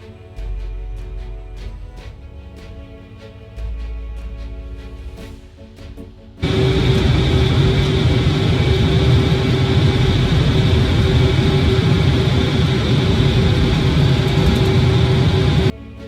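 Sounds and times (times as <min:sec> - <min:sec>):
jet engines rumbling and whining: 0:06.4 - 0:15.7.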